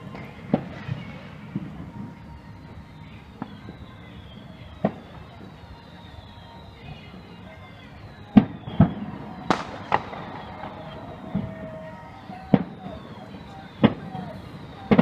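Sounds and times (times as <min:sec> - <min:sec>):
firework whistles sliding down: 0:00.0 - 0:15.0
firework shells bursting: 0:08.3 - 0:15.0.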